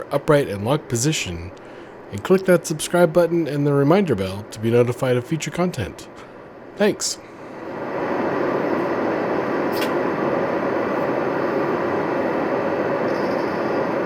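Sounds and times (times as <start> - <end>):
airplane cabin noise: 0.0 - 14.0.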